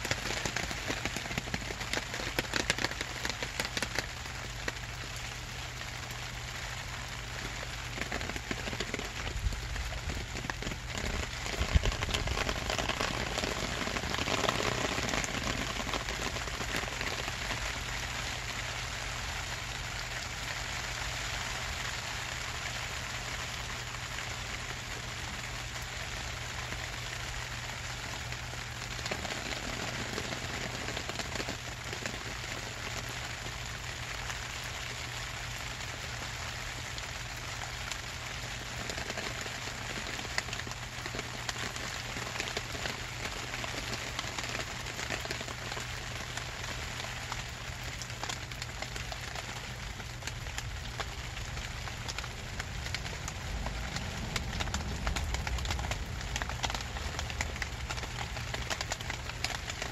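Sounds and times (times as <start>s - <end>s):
low steady rumble: 0.0s - 59.9s
rain pattering on plastic sheeting: 0.0s - 59.9s.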